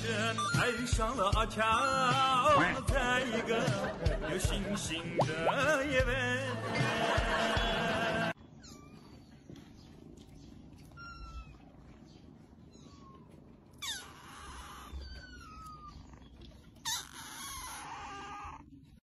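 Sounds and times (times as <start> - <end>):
kitten meowing: 8.6 - 9.1, 10.9 - 11.7, 12.7 - 18.6.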